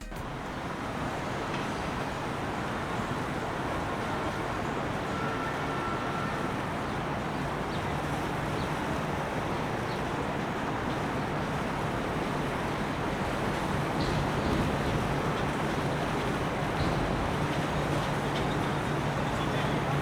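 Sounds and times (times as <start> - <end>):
low motor rumble: 0.0 - 5.4, 10.9 - 20.0
outdoor noise: 0.0 - 20.0.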